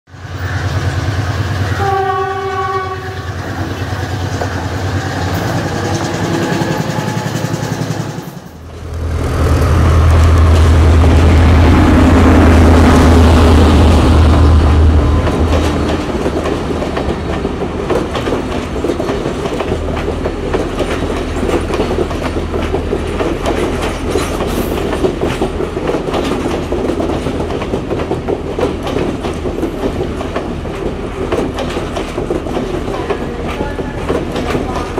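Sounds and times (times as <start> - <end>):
diesel train engine droning: 0.1 - 34.9
train horn blast: 1.6 - 3.7
wheels clattering over rail joints: 15.2 - 34.9.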